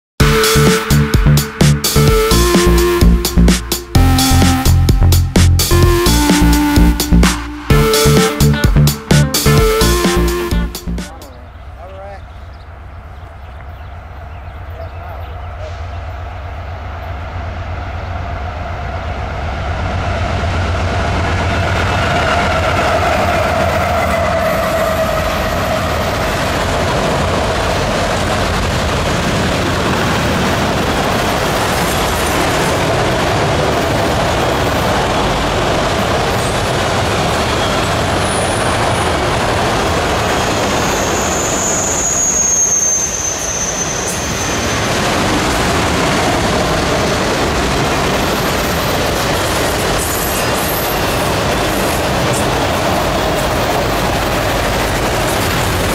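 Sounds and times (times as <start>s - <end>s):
diesel locomotive engine hum: 0.2s - 55.9s
train wheels rumbling on rails: 0.3s - 55.9s
wheels squealing on rails: 13.2s - 28.4s, 29.6s - 55.9s.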